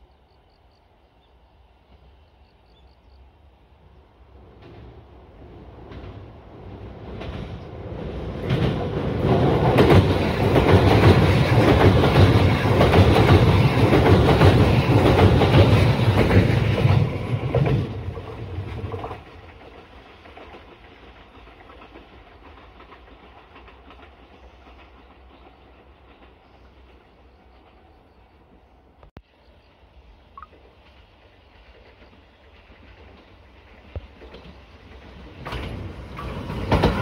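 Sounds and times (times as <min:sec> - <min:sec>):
train wheels clattering: 0:04.5 - 0:28.0, 0:30.5 - 0:37.0.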